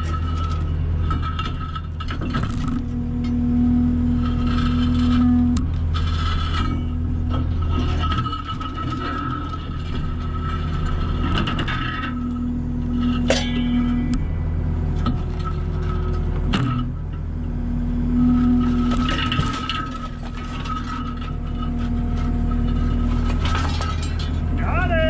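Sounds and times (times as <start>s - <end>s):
skid steer engine running: 0.0s - 25.0s
sharp metallic clanks: 12.9s - 14.3s.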